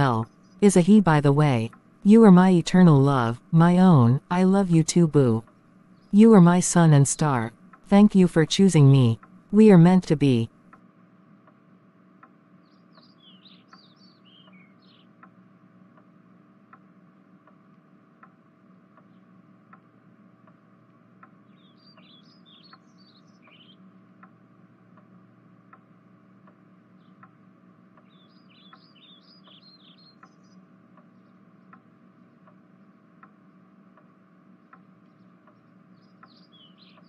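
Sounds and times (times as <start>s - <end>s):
steady low hum: 0.0s - 37.0s
faint bird song: 0.2s - 0.6s, 5.4s - 6.2s, 12.2s - 16.4s, 18.5s - 37.0s
soft regular ticks: 7.5s - 7.9s, 10.6s - 37.0s.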